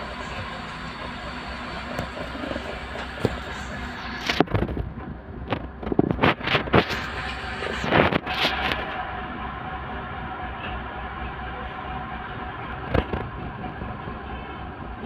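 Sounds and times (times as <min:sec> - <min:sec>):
car engine idling: 0:00.0 - 0:04.4
loud crackling noise bursts: 0:05.5 - 0:09.0.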